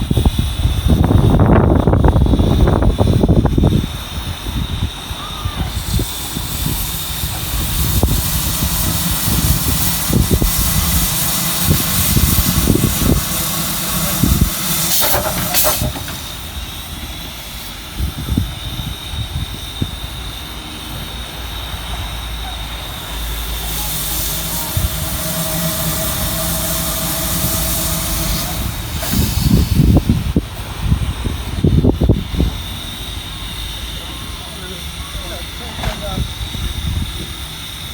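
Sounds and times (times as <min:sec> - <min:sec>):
steam hissing: 0:00.0 - 0:37.9
steam locomotive low thumps: 0:05.6 - 0:21.2, 0:22.8 - 0:33.9.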